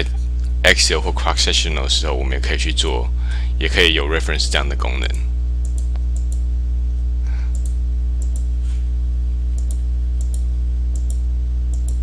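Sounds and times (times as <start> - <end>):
low electrical hum: 0.0 - 12.0
computer mouse clicking: 5.6 - 6.4, 7.5 - 8.5, 9.6 - 12.0.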